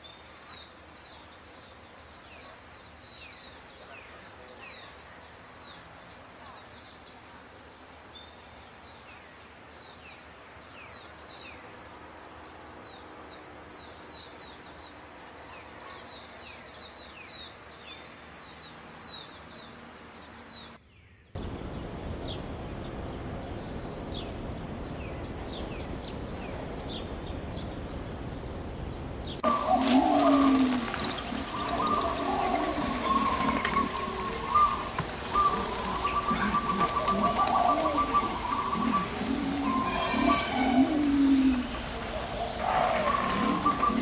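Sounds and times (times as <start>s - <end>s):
small birds chirping: 21.4s - 44.0s
river water rushing: 28.7s - 44.0s.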